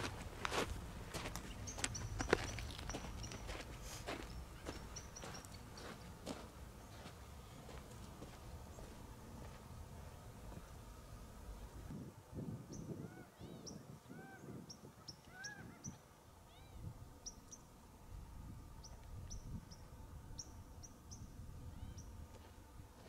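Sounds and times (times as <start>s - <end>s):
birds whistling: 1.4s - 3.6s, 4.2s - 6.0s.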